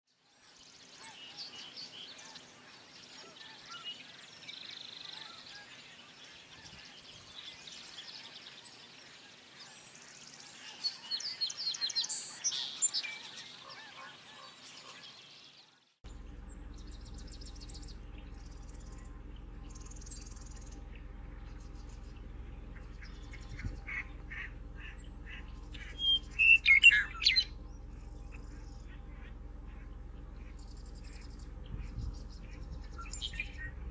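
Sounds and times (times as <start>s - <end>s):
bird chirps: 0.3s - 15.8s, 16.5s - 33.9s
wild birds calling: 0.3s - 33.9s
loud repeated bird calls: 0.8s - 15.8s, 16.5s - 33.8s
waterfowl calling: 0.9s - 15.6s, 16.8s - 33.9s
steady low hum: 16.0s - 33.9s.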